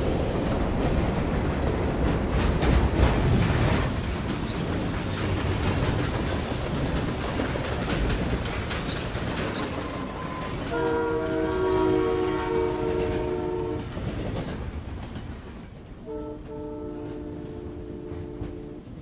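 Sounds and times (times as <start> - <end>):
train wheel squeal: 0.0 - 1.8, 2.6 - 15.0
train rumbling on rails: 0.0 - 19.0
train horn chord: 10.7 - 13.8, 16.0 - 18.8.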